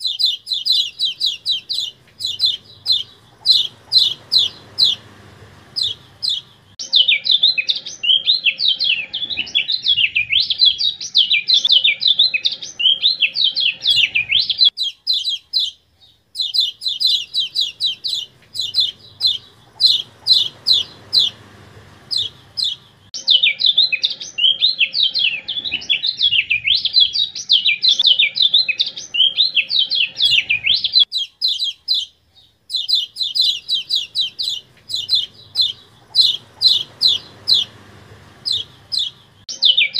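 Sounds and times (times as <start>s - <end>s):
white-eye song: 0.0s - 6.9s, 16.4s - 23.2s, 32.7s - 39.5s.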